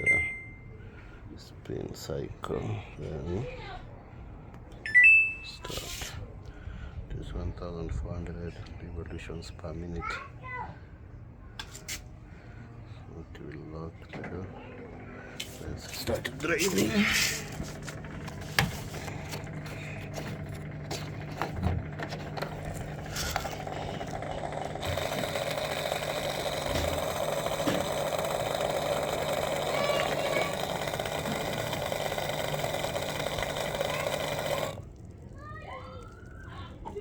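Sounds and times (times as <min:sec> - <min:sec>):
washing machine humming: 0:14.4 - 0:37.0
drain pump water rushing: 0:16.4 - 0:37.0.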